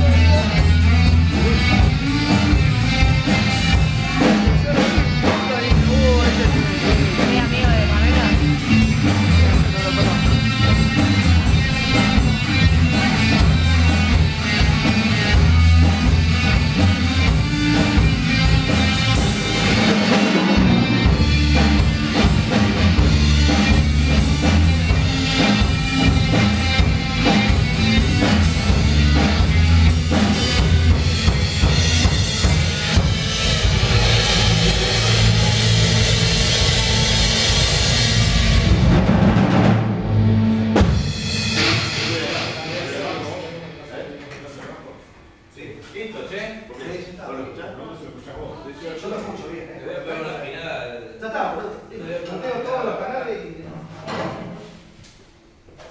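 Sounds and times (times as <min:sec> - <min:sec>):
heavy bass drum: 0:00.0 - 0:43.2
rock band playing: 0:00.0 - 0:44.0.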